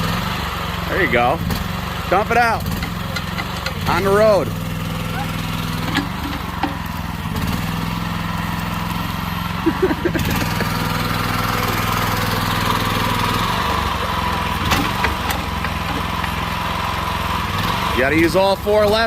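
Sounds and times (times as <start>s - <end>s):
small engine running: 0.0s - 19.0s
sharp knocks: 14.0s - 16.7s.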